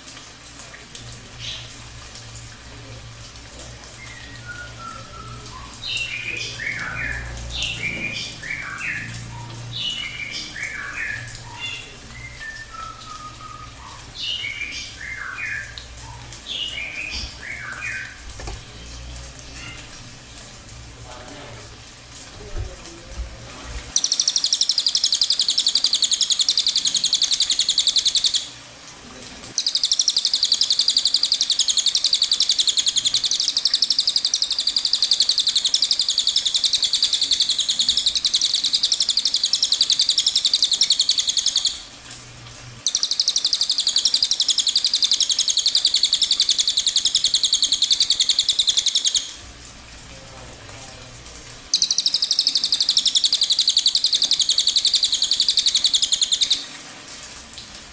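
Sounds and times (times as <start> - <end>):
small bird trilling: 24.0 - 28.4, 29.6 - 41.8, 42.9 - 49.3, 51.7 - 56.6.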